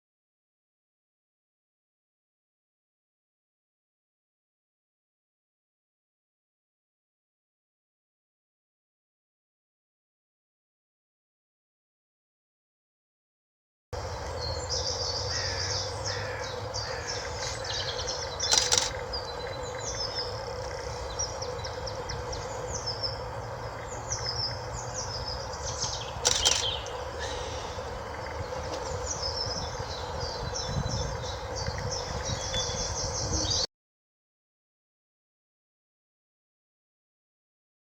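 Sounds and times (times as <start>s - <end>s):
loud bird calls: 14.0s - 33.7s
songbirds singing and chirping: 14.0s - 33.7s.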